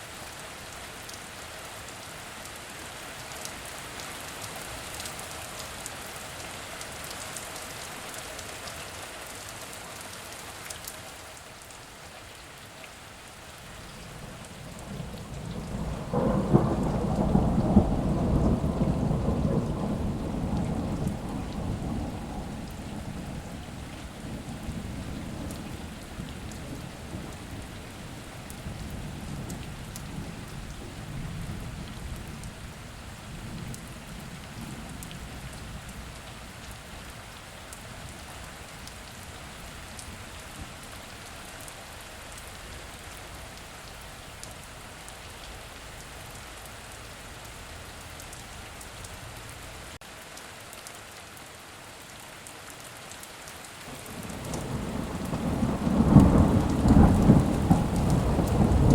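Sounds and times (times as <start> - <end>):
heavy rain falling: 0.0 - 58.9
low rumble of thunder: 13.8 - 40.9, 53.9 - 58.9.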